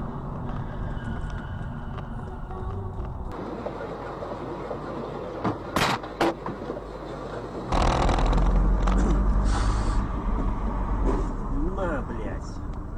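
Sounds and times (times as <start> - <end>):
road vehicle noise: 0.0 - 12.9
deep vehicle sound: 6.9 - 12.9.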